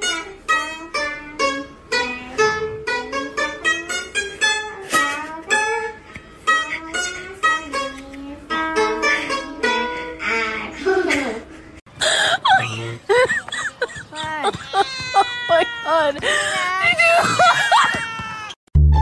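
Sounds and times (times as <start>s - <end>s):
plucked lute melody: 0.0s - 10.1s.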